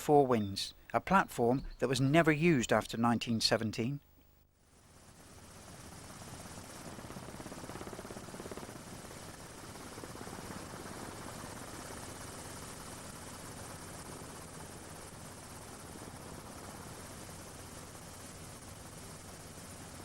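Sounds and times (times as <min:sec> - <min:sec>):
aircraft engine drone: 0:04.7 - 0:20.0.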